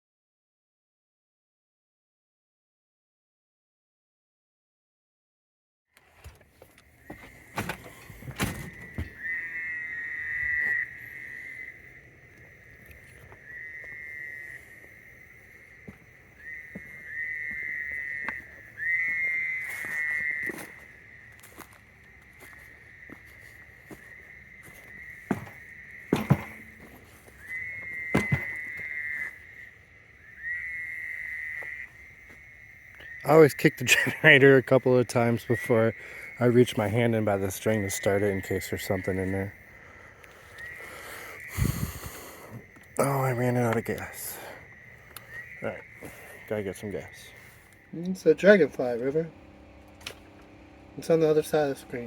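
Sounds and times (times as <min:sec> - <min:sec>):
frogs trilling: 0:06.6 - 0:52.0
sharp knocks: 0:25.3 - 0:26.9, 0:28.1 - 0:28.6
knocks on generator: 0:26.1 - 0:26.6
high steady tone: 0:42.9 - 0:52.0.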